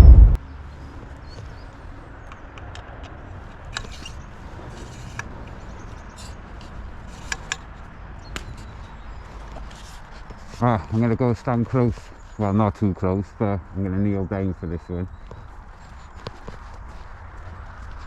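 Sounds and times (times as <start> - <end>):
low outdoor rumble: 0.0 - 1.9.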